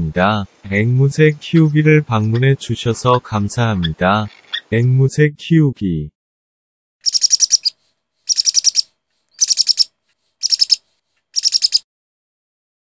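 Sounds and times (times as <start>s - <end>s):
bird twittering: 7.0s - 10.8s, 11.4s - 11.8s.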